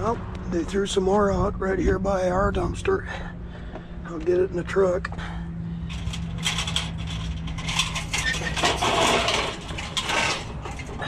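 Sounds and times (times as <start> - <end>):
low engine hum: 0.0 - 11.0
scrap metal rattling and clattering: 5.8 - 11.0.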